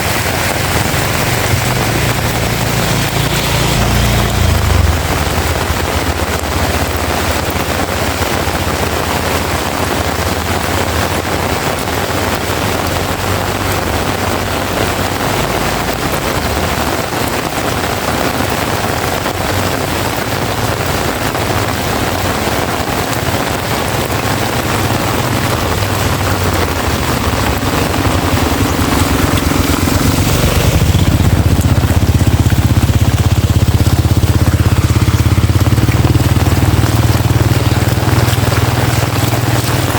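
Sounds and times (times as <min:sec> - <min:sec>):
low rumble: 0:00.0 - 0:11.2, 0:24.1 - 0:39.9
heavy rain pouring: 0:00.0 - 0:39.9.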